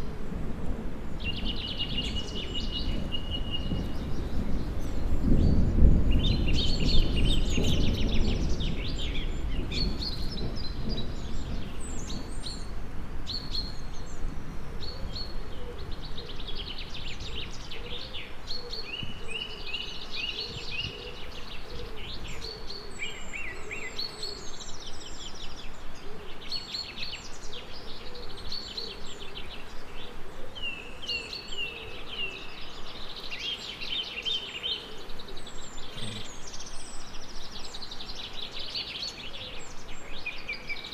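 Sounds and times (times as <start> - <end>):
songbirds chirping and trilling: 0.0 - 40.9
thunder rumbling: 0.2 - 12.9.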